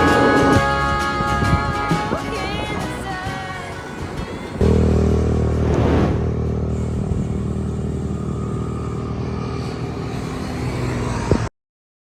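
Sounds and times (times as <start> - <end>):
vehicle engine running: 4.4 - 11.5
passing rush of noise: 4.6 - 10.7.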